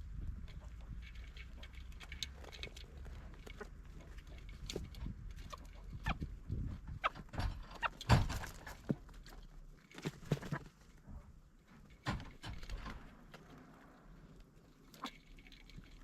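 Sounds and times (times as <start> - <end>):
sharp thuds and knocks: 6.2 - 9.1.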